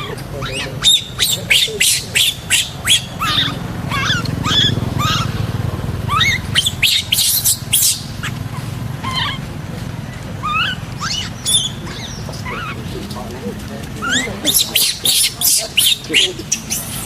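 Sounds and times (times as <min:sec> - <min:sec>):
baby monkey squeaking: 0:00.0 - 0:05.4, 0:06.1 - 0:08.4, 0:09.0 - 0:09.5, 0:10.4 - 0:12.9, 0:14.0 - 0:17.0
low engine hum: 0:00.0 - 0:17.0.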